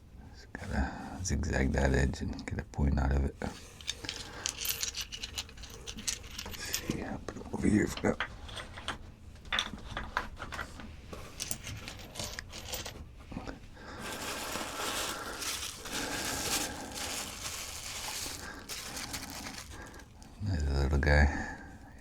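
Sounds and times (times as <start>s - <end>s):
paper crinkling and rustling: 14.0s - 20.4s.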